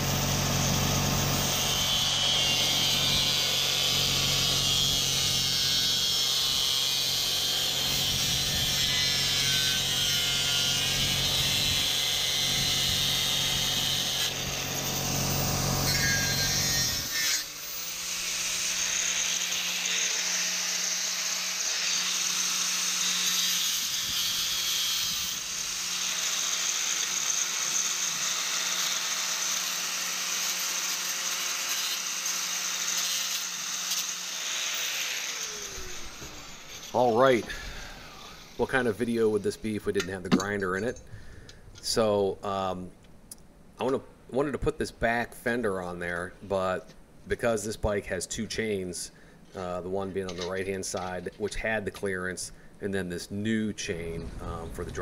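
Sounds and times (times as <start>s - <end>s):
angle grinder cutting metal: 0.0s - 39.7s.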